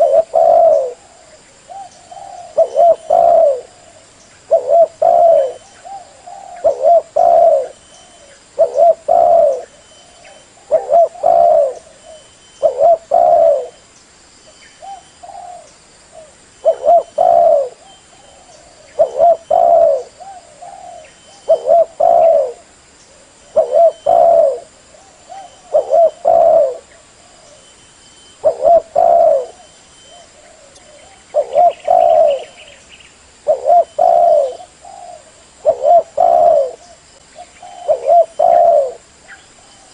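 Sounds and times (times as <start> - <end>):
dove cooing: 0.0 - 13.8, 14.8 - 32.8, 33.4 - 39.9.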